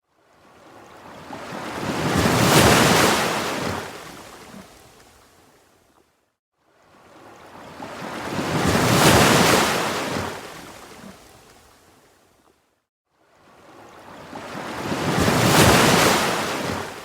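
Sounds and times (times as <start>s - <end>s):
ocean waves washing in: 13.5s - 17.0s.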